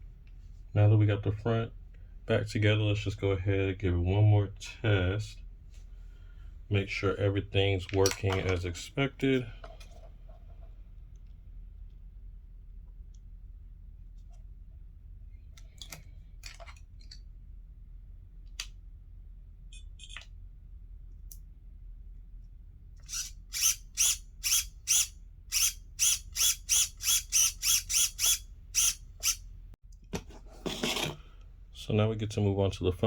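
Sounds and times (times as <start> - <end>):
steering servo whirring: 23.0 - 29.4.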